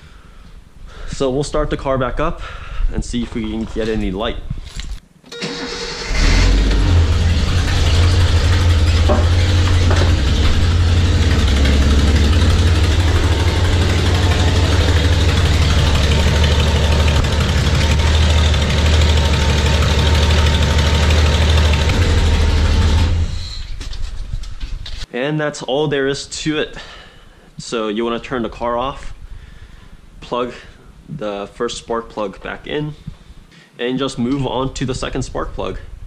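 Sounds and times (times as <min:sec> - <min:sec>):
starter cranking: 0:05.3 - 0:23.3
car engine idling: 0:05.4 - 0:23.5.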